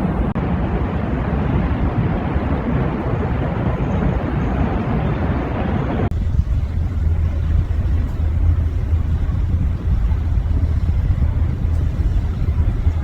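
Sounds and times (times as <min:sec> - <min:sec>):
vehicle driving rumble: 0:04.6 - 0:13.0.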